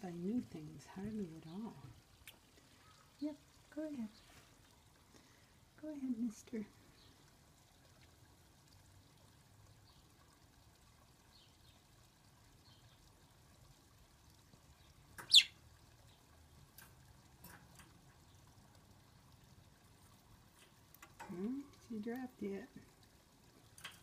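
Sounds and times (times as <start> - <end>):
faint light ticks: 2.2 - 2.5, 20.0 - 24.0
bird moving in wire cage: 23.7 - 24.0.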